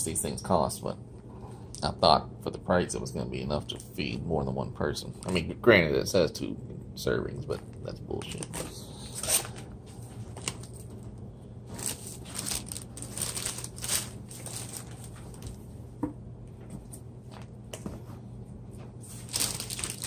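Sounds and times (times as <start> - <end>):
plastic packaging crinkling: 10.2 - 11.1, 11.7 - 15.6, 19.1 - 20.0.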